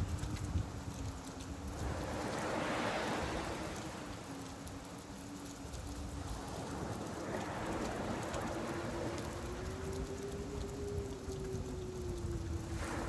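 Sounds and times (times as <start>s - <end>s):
rain falling: 0.0s - 13.0s
surf washing in: 1.7s - 4.6s, 6.2s - 10.7s, 12.6s - 13.0s.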